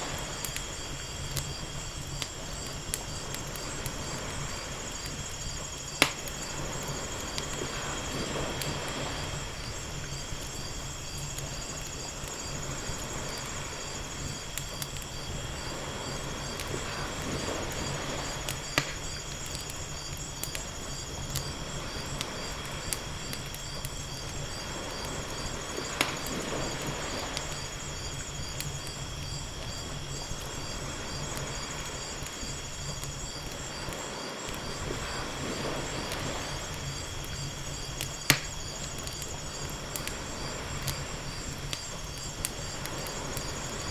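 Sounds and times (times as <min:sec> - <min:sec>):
crickets chirping: 0:00.0 - 0:43.9
wood fire crackling: 0:00.0 - 0:43.9
loud sharp fire pops: 0:00.1 - 0:09.0, 0:16.4 - 0:20.7, 0:21.3 - 0:27.7, 0:38.0 - 0:40.2
ocean waves washing: 0:05.9 - 0:10.1, 0:15.3 - 0:19.4, 0:24.4 - 0:28.1, 0:33.8 - 0:37.8.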